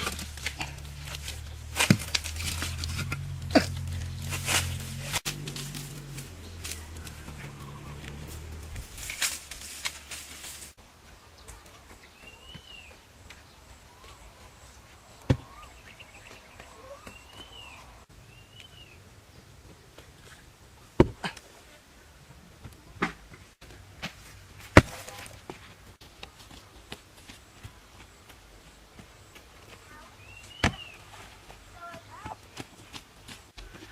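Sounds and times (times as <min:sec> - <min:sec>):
bird chirps: 0:12.0 - 0:14.7, 0:15.3 - 0:19.0, 0:30.1 - 0:31.0.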